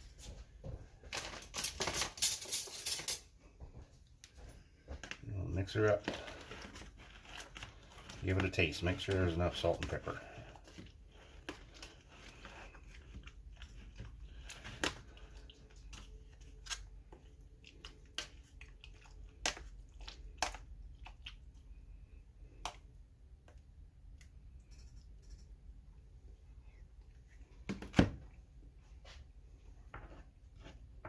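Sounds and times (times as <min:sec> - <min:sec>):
person chewing food: 0:06.0 - 0:08.3, 0:10.1 - 0:25.7.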